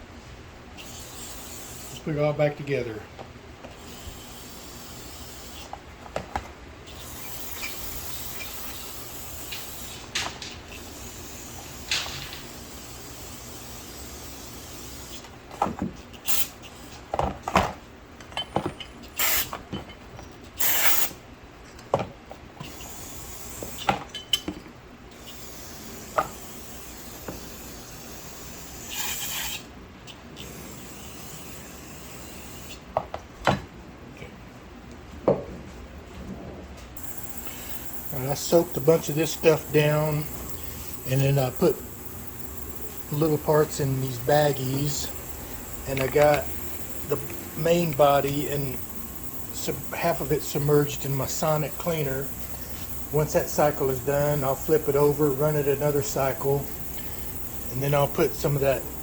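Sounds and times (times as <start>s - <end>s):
steady low hum: 0.0s - 59.0s
spray hiss: 6.9s - 10.1s, 10.7s - 15.2s, 16.2s - 16.6s, 19.2s - 19.5s, 20.6s - 21.2s, 25.2s - 29.7s, 37.0s - 59.0s
metal parts clicking and knocking: 11.8s - 12.7s, 44.4s - 49.7s.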